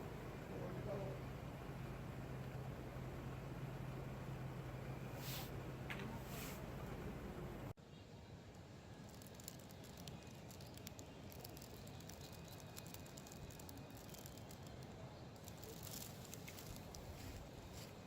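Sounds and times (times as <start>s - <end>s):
low even hiss: 0.0s - 18.0s
campfire crackling: 9.0s - 18.0s.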